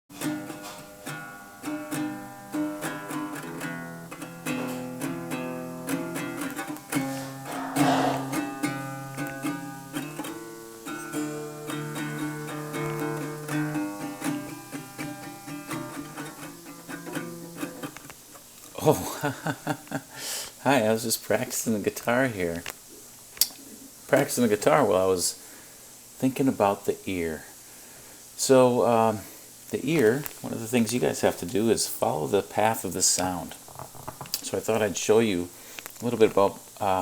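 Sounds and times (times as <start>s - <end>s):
guitar notes and chords: 0.1s - 18.2s.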